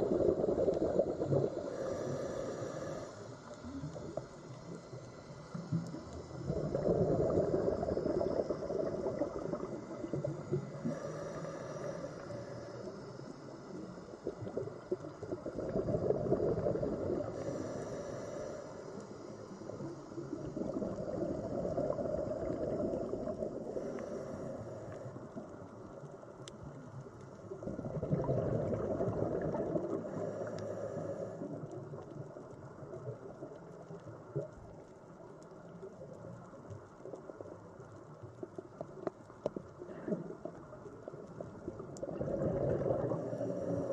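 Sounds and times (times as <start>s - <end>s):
muffled underwater rush: 0.0s - 43.9s.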